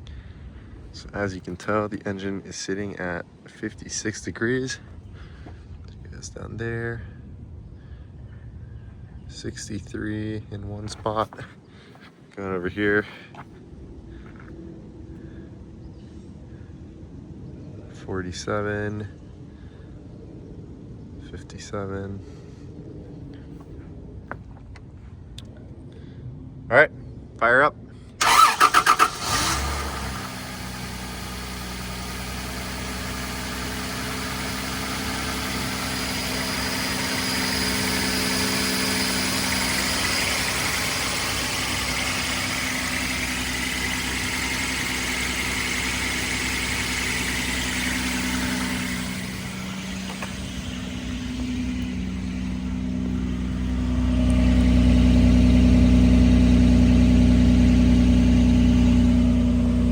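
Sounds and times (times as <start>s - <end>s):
deep exhaust rumble: 0.0s - 18.5s, 28.1s - 59.9s
car engine idling: 28.2s - 59.9s
high whine: 34.1s - 56.0s.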